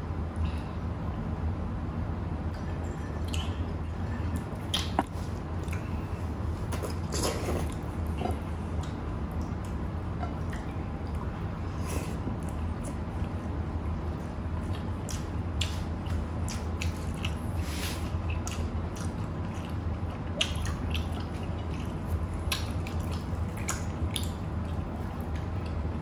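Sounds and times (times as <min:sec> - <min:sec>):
steady low hum: 0:00.0 - 0:26.0
wet mouth chewing sounds: 0:04.6 - 0:06.0, 0:14.1 - 0:26.0.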